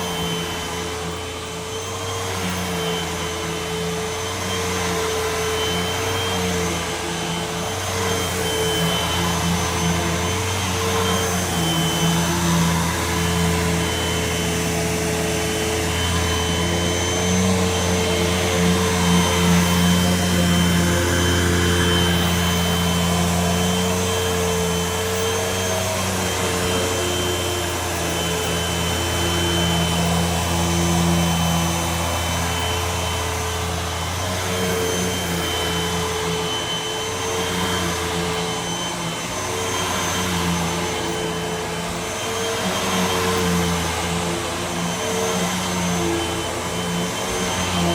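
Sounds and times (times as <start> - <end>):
vacuum cleaner motor hum: 0.0 - 47.9.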